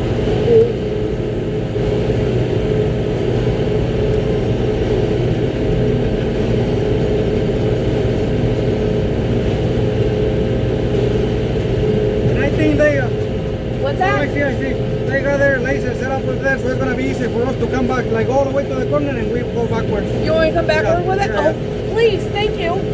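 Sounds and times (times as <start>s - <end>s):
diesel engine drone from cab: 0.0s - 22.9s.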